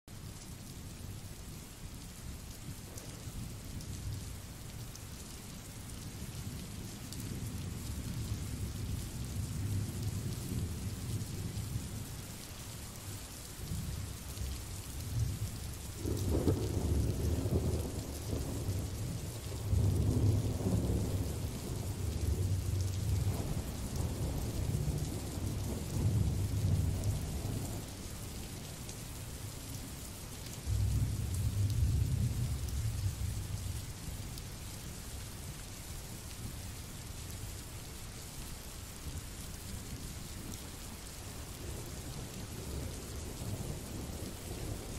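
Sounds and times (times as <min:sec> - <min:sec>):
steady rain hiss: 0:00.1 - 0:44.9
rolling thunder: 0:16.0 - 0:27.9, 0:30.7 - 0:33.6.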